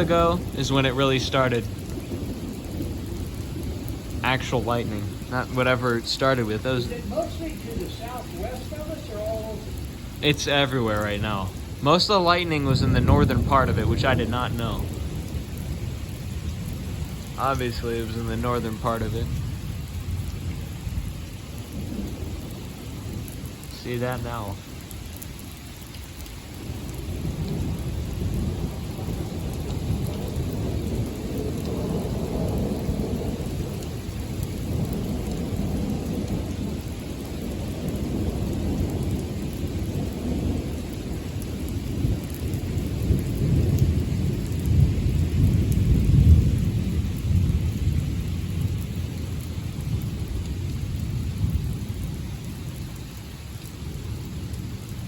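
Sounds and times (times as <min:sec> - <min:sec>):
rolling thunder: 0:00.0 - 0:55.0
steady rain: 0:00.0 - 0:55.0.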